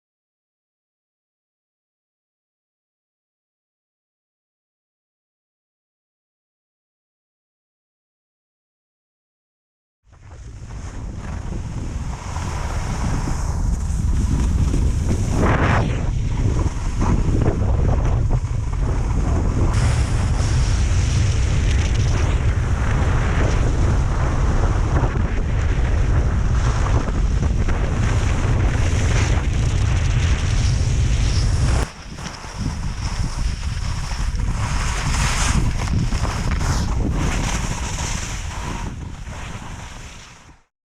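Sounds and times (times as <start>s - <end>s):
wind buffeting microphone: 10.2s - 40.6s.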